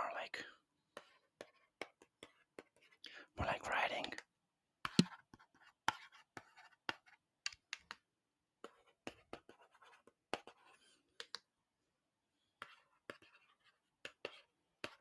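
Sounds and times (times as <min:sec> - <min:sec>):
pen scratching while writing: 0:05.0 - 0:07.2, 0:08.6 - 0:11.3, 0:12.6 - 0:15.0.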